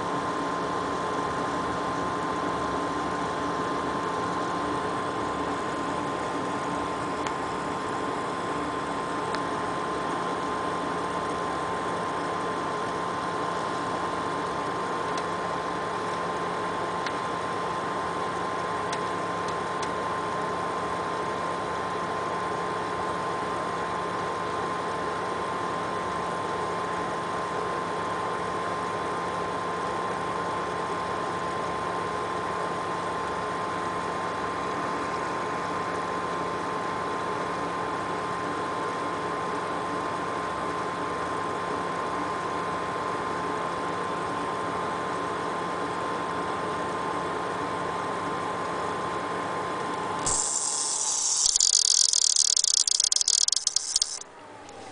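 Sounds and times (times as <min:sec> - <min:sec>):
pump high-pitched whine: 0:50.2 - 0:54.9.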